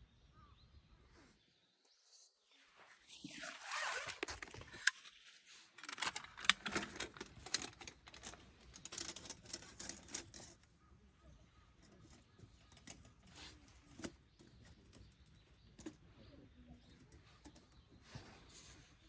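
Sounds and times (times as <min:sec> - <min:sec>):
fabric rustling: 0:02.7 - 0:06.0
small clicks of gear: 0:03.2 - 0:10.7, 0:11.8 - 0:16.0.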